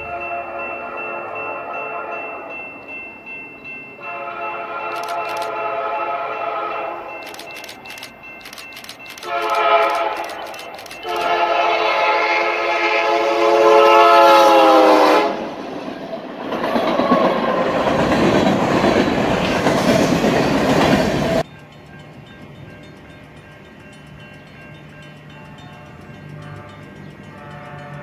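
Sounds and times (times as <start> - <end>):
locomotive air horn blast: 4.1 - 7.1, 9.2 - 10.2, 11.0 - 15.6, 26.4 - 28.0.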